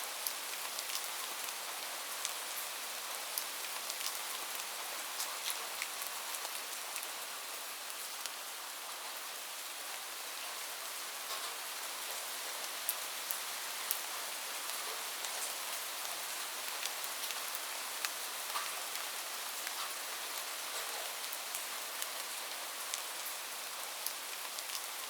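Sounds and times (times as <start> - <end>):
steady rain: 0.0 - 25.0.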